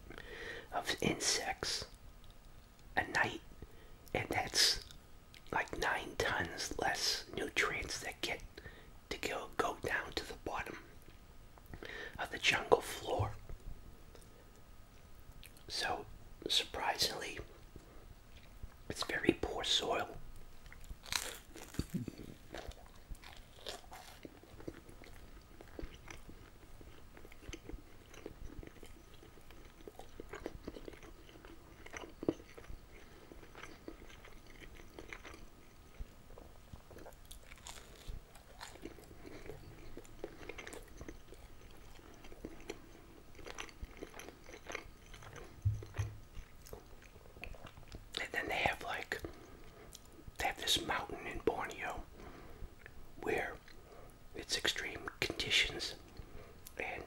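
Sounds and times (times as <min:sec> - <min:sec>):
wet chewing: 0:20.6 - 0:48.2
crunching toast: 0:20.7 - 0:45.6
soft low thump: 0:45.6 - 0:46.2.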